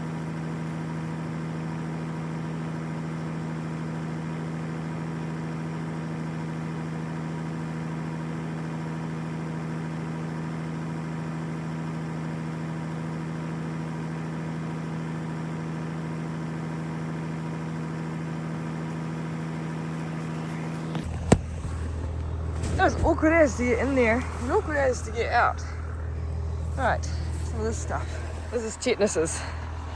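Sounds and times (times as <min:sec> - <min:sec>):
tractor engine idling: 0:14.8 - 0:29.9.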